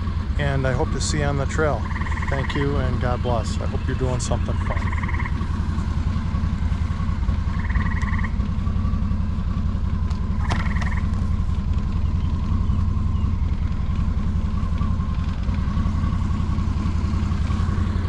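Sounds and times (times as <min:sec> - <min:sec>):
diesel engine idling: 0:00.0 - 0:18.0
frog trilling: 0:01.7 - 0:02.8, 0:04.4 - 0:05.4, 0:07.5 - 0:08.4, 0:10.4 - 0:11.1.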